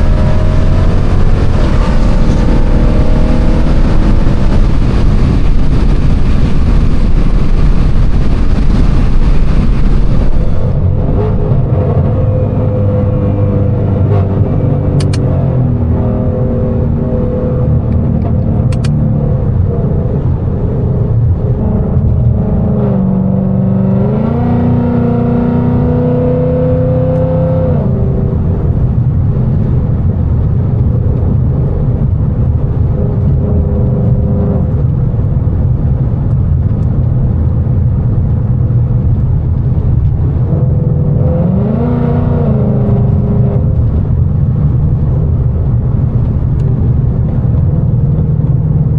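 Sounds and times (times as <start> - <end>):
car exhaust drone: 0.0 - 48.9
sharp clicks: 15.0 - 15.2, 18.6 - 19.0.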